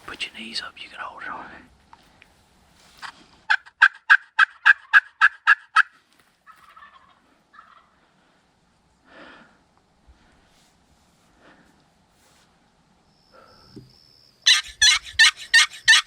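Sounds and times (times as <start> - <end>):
faint short turkey calls: 3.0 - 8.0
turkey yelping: 3.5 - 7.9, 14.5 - 16.0.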